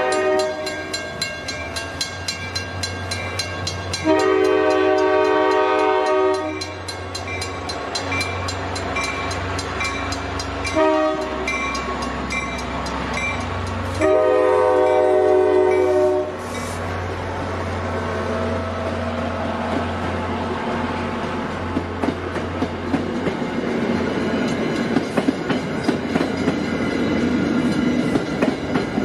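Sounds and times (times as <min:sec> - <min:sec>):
train horn blasts: 0:00.0 - 0:00.9, 0:03.9 - 0:06.8, 0:10.7 - 0:11.6, 0:14.0 - 0:16.5
mechanical crossing bell ringing: 0:00.0 - 0:05.4, 0:06.5 - 0:10.8
locomotive drone: 0:00.0 - 0:29.0.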